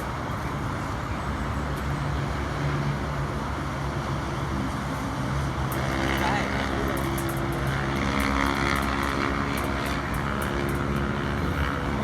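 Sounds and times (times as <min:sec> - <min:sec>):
distant highway traffic roar: 0:00.0 - 0:12.0
faint engine hum: 0:00.0 - 0:12.0.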